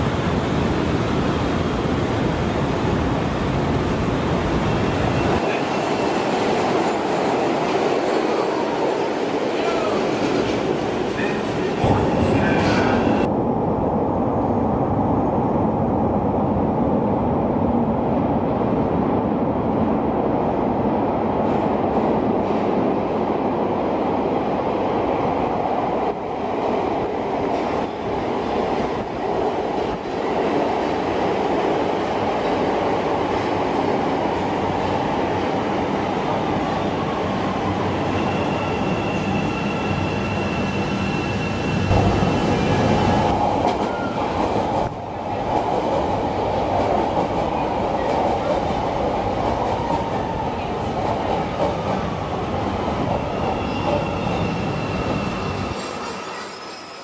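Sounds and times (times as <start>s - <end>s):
train rumbling on rails: 0.0s - 57.0s
faint high wheel squeal: 38.2s - 41.9s, 53.4s - 57.0s.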